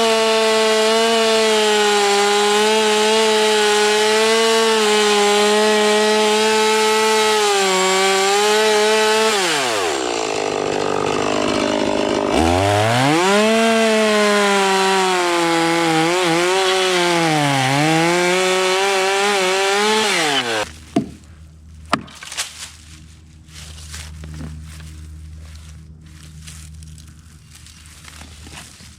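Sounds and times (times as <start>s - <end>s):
chainsaw cutting wood: 0.0s - 21.2s.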